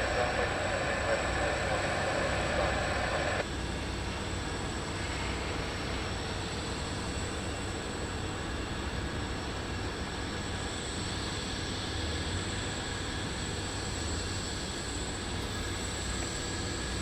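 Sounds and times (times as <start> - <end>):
high-pitched turbine whine: 0.0 - 3.5
jet aircraft engine noise: 0.0 - 17.0.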